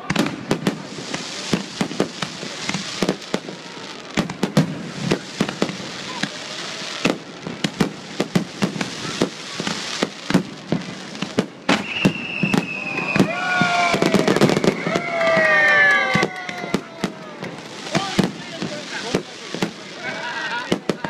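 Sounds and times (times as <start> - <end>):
continuous hiss: 0.0 - 16.1, 16.7 - 21.0.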